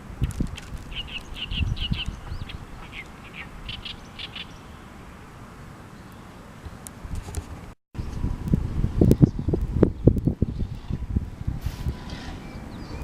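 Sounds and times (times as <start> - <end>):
wind rumble: 0.0 - 5.6, 6.6 - 13.0
small bird chirping: 0.2 - 4.8.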